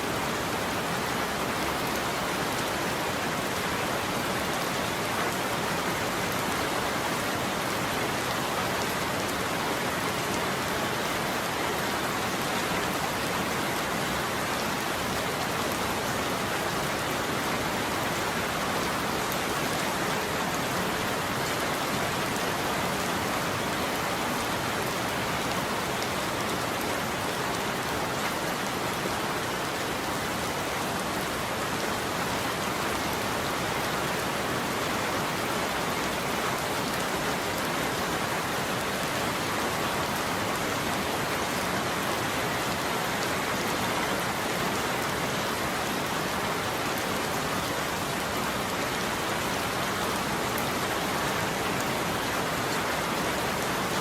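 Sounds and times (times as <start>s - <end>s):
heavy rain on a surface: 0.0s - 54.0s.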